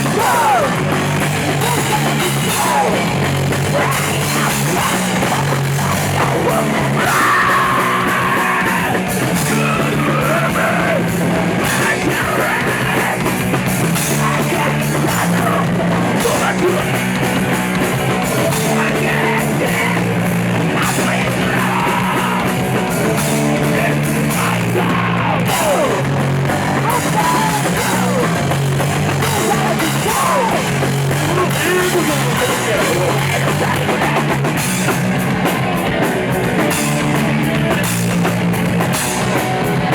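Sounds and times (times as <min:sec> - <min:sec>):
person yelling vocals: 0:00.0 - 0:01.0, 0:05.9 - 0:13.2, 0:23.7 - 0:26.1, 0:26.7 - 0:28.5, 0:29.2 - 0:34.0
punk rock band playing: 0:00.0 - 0:39.9.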